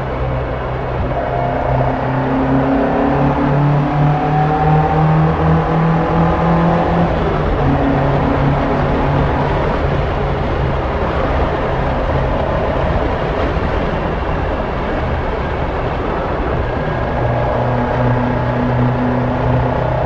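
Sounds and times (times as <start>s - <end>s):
car engine running: 0.0s - 20.0s
road and wind noise: 0.0s - 20.0s.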